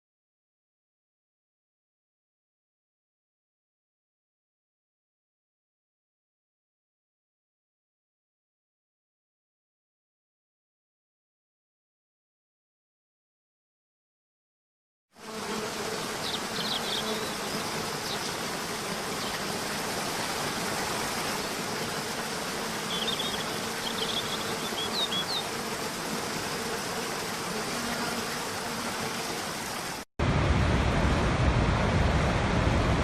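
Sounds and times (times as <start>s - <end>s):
faint steady buzz: 15.2s - 30.0s.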